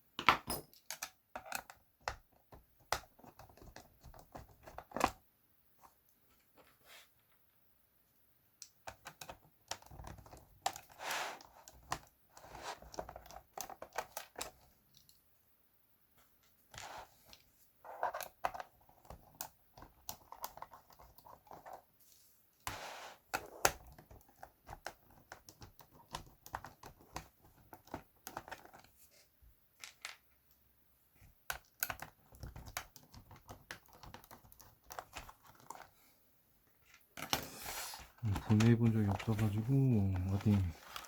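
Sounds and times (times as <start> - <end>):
short rustling scrapes: 6.4 - 7.2, 16.8 - 17.3, 22.0 - 23.2, 37.4 - 38.2
plastic keyboard clicks and taps: 23.4 - 28.9, 31.4 - 35.9.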